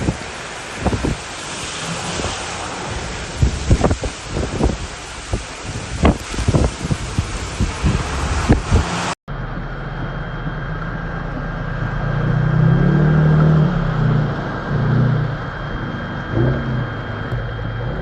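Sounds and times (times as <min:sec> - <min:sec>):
road noise: 0:00.0 - 0:18.0
wind gust: 0:00.0 - 0:18.0
car engine running: 0:08.5 - 0:18.0.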